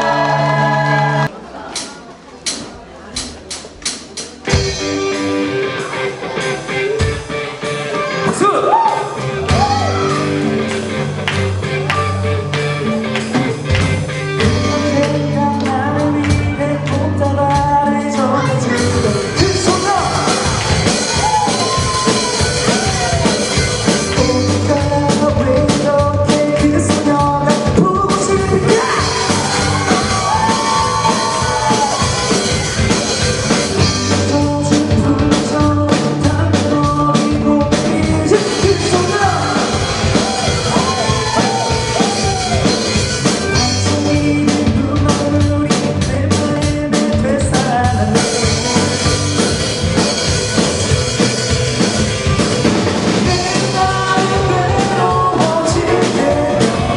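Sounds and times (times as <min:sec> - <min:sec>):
bass line: 0:00.0 - 0:01.3, 0:04.1 - 0:56.9
band playing rock song live: 0:00.0 - 0:56.9
drums: 0:00.0 - 0:56.9
person singing: 0:14.4 - 0:50.0, 0:53.1 - 0:56.9.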